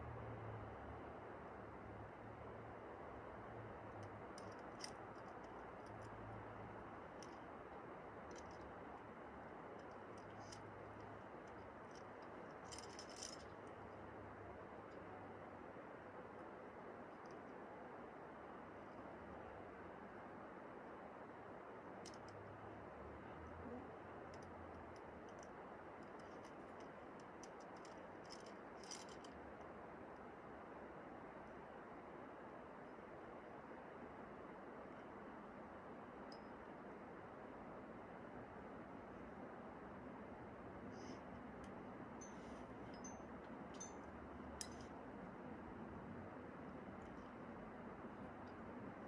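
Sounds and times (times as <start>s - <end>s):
steady background hiss: 0.0s - 49.0s
metal climbing gear jingling: 9.8s - 13.8s, 26.1s - 29.3s, 42.2s - 44.9s.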